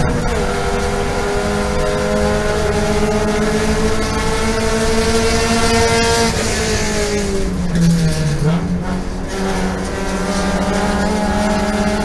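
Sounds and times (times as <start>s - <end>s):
race car engine at high revs: 0.0s - 12.0s.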